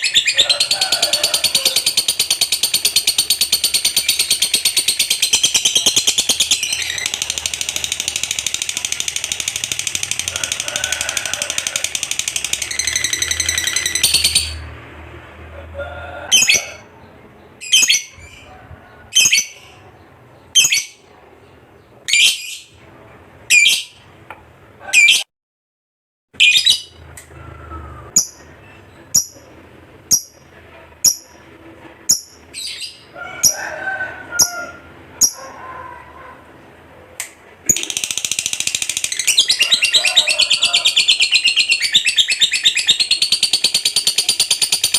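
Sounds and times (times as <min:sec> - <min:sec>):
lovebird chattering trill: 0:00.0 - 0:14.6, 0:19.1 - 0:19.8, 0:29.1 - 0:29.4, 0:30.1 - 0:30.4, 0:31.0 - 0:31.4, 0:35.2 - 0:35.5, 0:37.7 - 0:44.9
bird sharp high chirps: 0:37.7 - 0:44.9.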